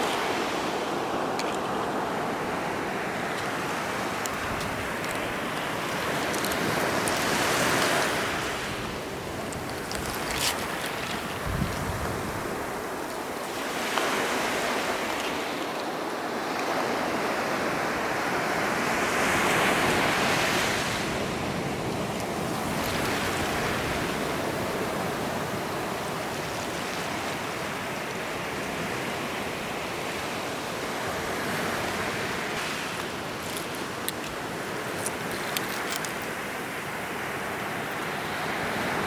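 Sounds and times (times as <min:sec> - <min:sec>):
ocean surf breaking on beach: 0:00.0 - 0:39.0.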